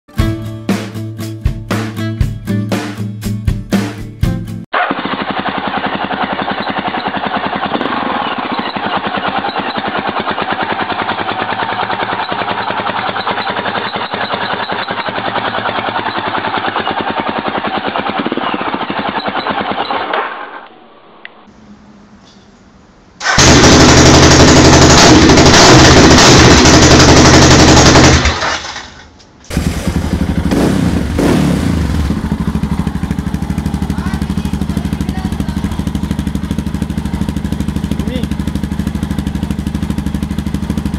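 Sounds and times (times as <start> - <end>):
motorcycle engine staccato exhaust: 4.8 - 20.0, 23.2 - 28.5, 29.5 - 40.9.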